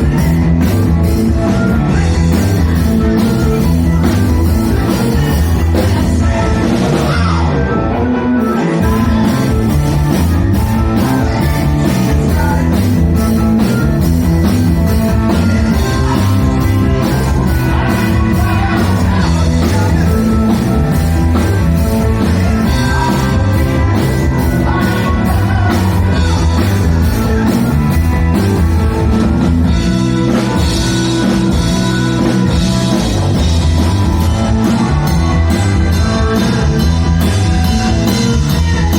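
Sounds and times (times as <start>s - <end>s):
rock band playing live: 0.0s - 38.9s
regular drum beat: 8.8s - 38.9s.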